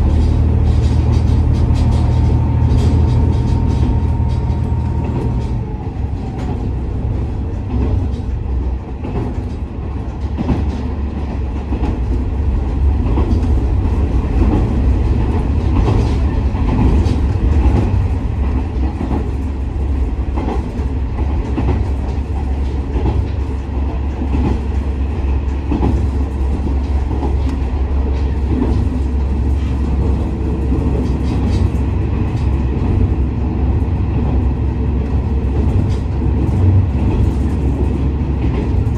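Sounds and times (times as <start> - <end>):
wheel clicks on rail joints: 0.0 - 6.8
diesel engine drone: 0.0 - 9.3
wheels rumbling on rails: 0.0 - 38.9.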